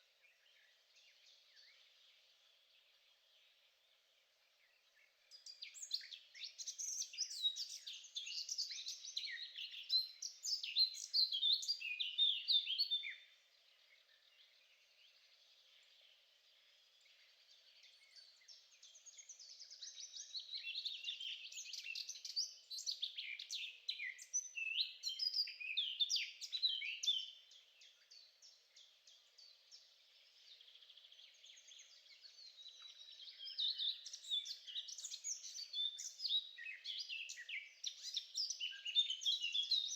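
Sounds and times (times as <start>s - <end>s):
songbird singing chirps and trills: 0.0s - 39.9s.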